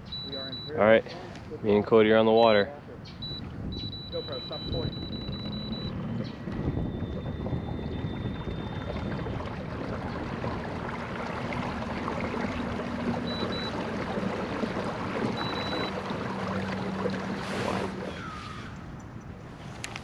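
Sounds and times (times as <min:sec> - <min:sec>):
water rushing along kayak hull: 0:00.0 - 0:20.0
wind on microphone: 0:03.1 - 0:11.9.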